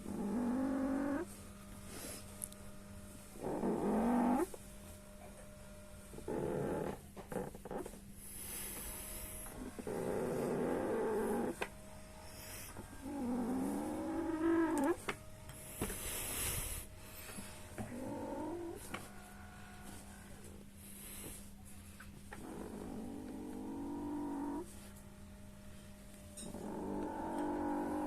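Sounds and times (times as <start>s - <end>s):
massager motor hum: 0.0s - 28.0s
massage rollers squeaking: 6.2s - 8.1s, 8.8s - 11.7s, 12.7s - 15.2s
massager rollers squeaking: 6.2s - 8.1s.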